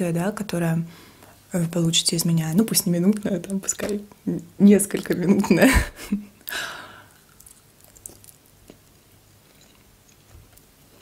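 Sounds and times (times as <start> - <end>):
person biting and chewing: 7.1 - 10.3.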